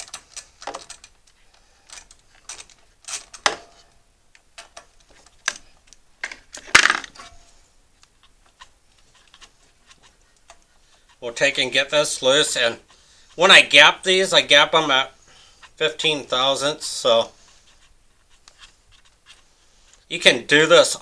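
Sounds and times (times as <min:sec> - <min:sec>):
metal tools clinking and rattling: 0:00.0 - 0:04.0.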